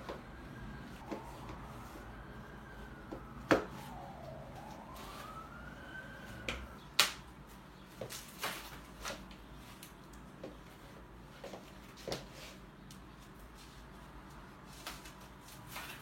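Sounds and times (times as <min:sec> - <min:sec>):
faint siren wail: 0:00.0 - 0:07.0.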